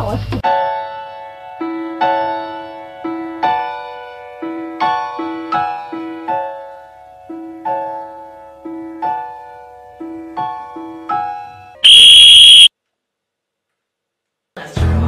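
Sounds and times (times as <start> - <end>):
gentle piano music: 0.4 - 11.7
shrill electronic beep: 11.8 - 12.7.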